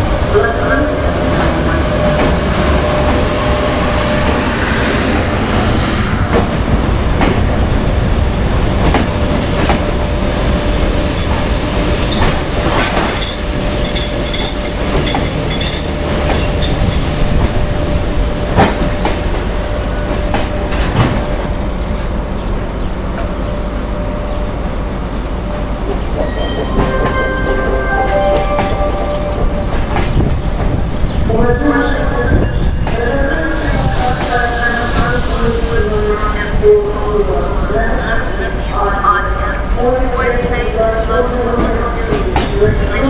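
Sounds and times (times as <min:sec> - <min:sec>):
train wheels clacking on rails: 0:08.8 - 0:21.5.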